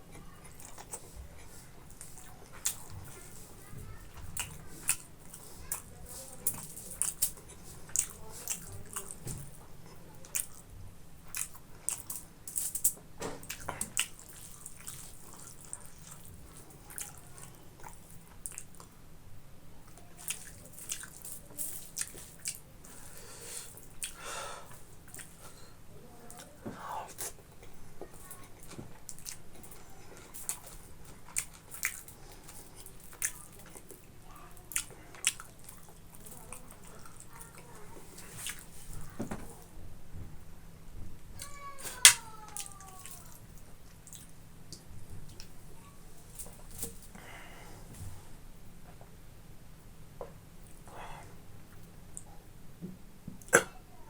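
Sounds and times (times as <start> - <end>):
close chewing of food: 0.0 - 19.1, 19.8 - 39.7.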